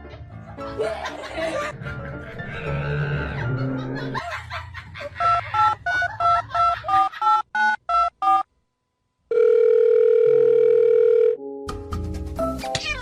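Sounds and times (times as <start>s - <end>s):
long steady dial tone: 7.2s - 11.4s.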